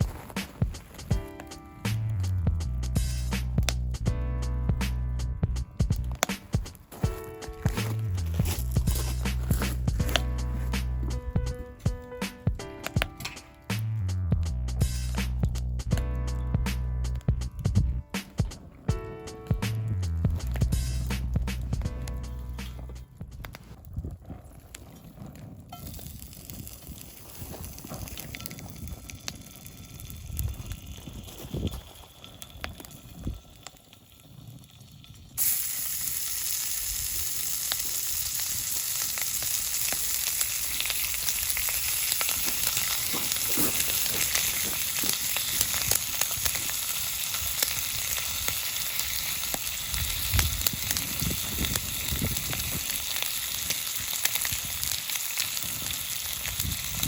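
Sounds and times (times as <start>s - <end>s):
food sizzling in hot oil: 7.0s - 11.9s, 25.8s - 57.0s.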